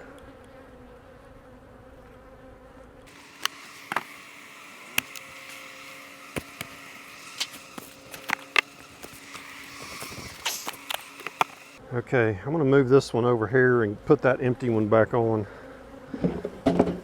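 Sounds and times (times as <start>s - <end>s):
sharp clicks and knocks: 3.1s - 4.2s, 4.8s - 11.8s
bees buzzing: 3.1s - 11.8s.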